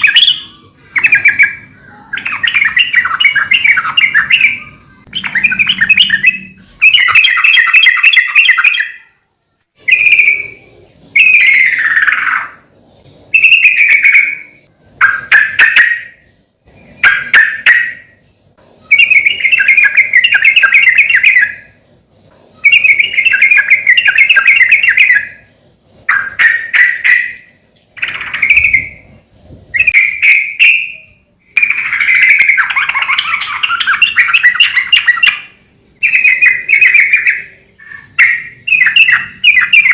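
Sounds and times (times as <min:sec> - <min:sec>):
bird singing chattering phrases: 0:00.0 - 0:09.1, 0:18.8 - 0:21.8, 0:26.1 - 0:29.1, 0:29.8 - 0:39.9.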